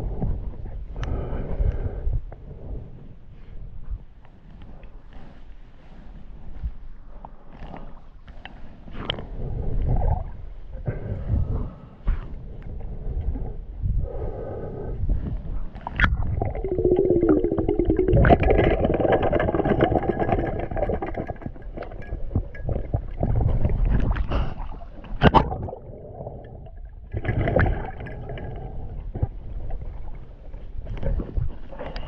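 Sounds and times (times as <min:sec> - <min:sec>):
muffled underwater gurgling: 0:15.8 - 0:32.0.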